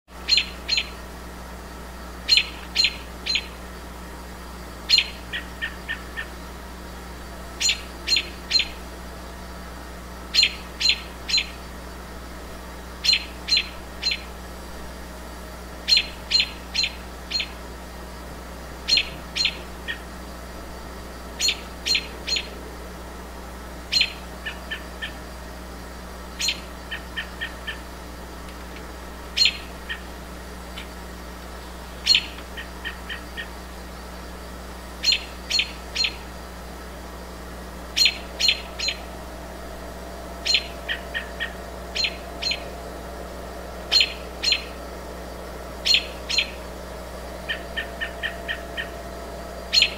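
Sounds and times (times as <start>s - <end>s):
bird calling high sharp notes: 0.2s - 1.0s, 2.2s - 3.6s, 7.6s - 8.8s, 10.3s - 11.6s, 13.0s - 14.3s, 15.8s - 17.6s, 18.8s - 20.1s, 21.4s - 22.6s, 23.9s - 25.2s, 26.4s - 27.9s, 29.3s - 30.1s, 31.9s - 33.5s, 35.0s - 36.3s, 37.9s - 42.8s, 43.8s - 44.9s, 45.8s - 49.9s.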